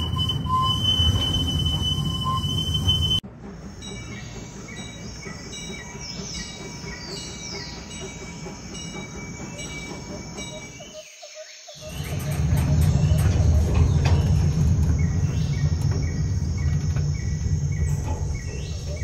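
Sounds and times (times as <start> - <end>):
high wheel squeals: 0.0 - 10.9
train cars rumbling on track: 0.0 - 19.0.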